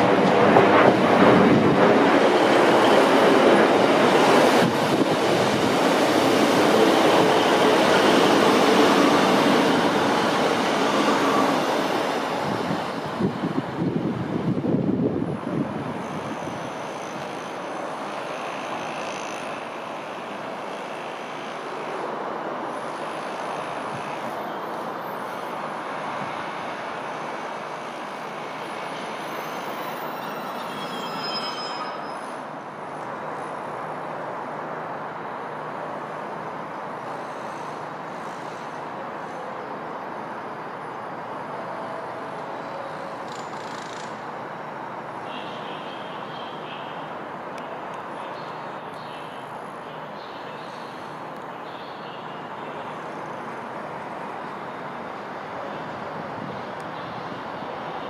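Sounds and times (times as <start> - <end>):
diesel train running: 0.0 - 34.6
high squeals from running gear: 28.9 - 32.5.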